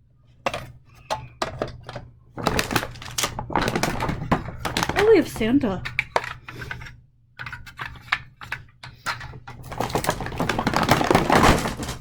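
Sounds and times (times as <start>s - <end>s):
toy train pieces clattering: 2.4s - 6.7s.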